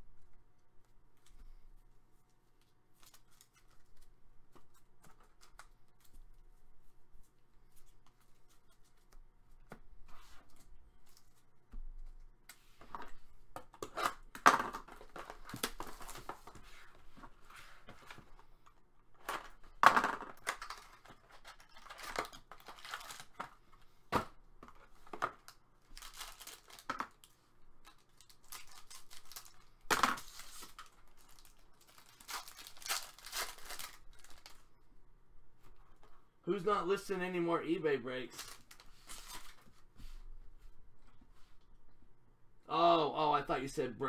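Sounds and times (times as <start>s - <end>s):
card packs tearing open: 20.4s - 23.5s, 25.4s - 34.6s, 38.3s - 39.6s
wrappers crinkling: 20.4s - 23.5s, 25.4s - 34.7s, 38.3s - 39.6s.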